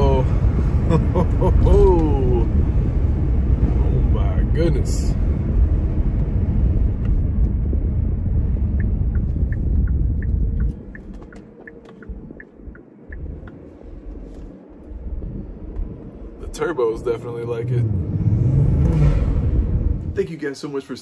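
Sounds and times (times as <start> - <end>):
car engine under heavy throttle: 0.0 - 20.4
road rumble: 0.0 - 21.0.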